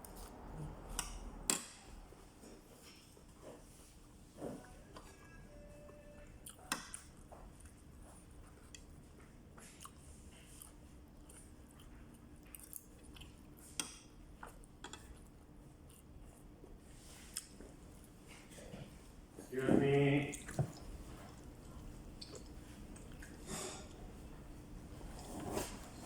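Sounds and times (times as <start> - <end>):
faint steady hum: 0.0 - 26.0
chewing: 4.5 - 18.8, 20.2 - 26.0.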